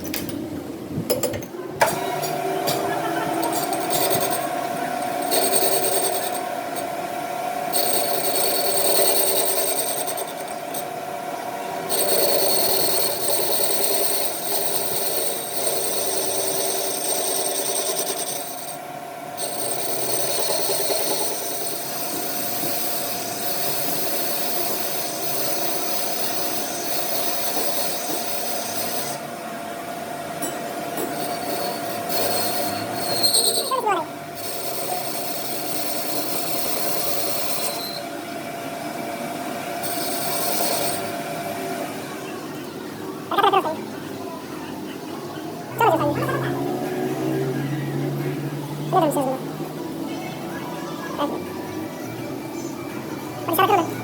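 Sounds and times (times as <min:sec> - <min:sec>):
metalworking tool scraping metal: 0:03.4 - 0:06.9, 0:07.7 - 0:10.9, 0:11.9 - 0:18.8, 0:19.4 - 0:29.3, 0:30.4 - 0:38.0, 0:39.8 - 0:41.2.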